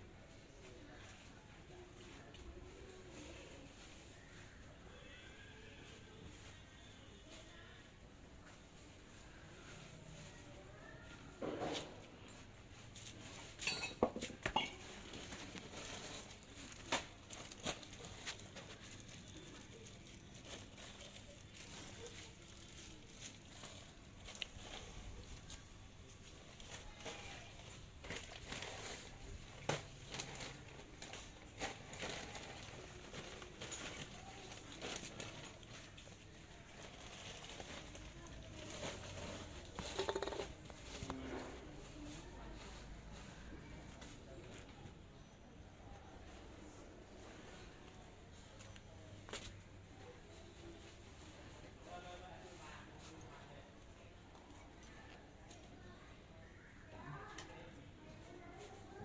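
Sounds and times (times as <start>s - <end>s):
metal tools clinking: 13.6s - 14.8s.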